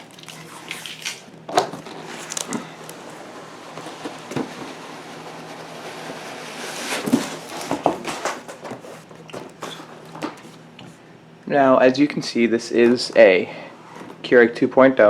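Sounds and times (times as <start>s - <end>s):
cardboard box scraping and rustling: 1.6s - 10.6s.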